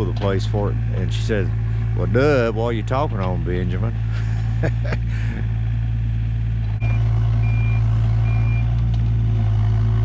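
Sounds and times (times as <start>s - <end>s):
excavator diesel engine running: 0.0s - 10.0s
travel alarm beeping: 6.8s - 8.7s.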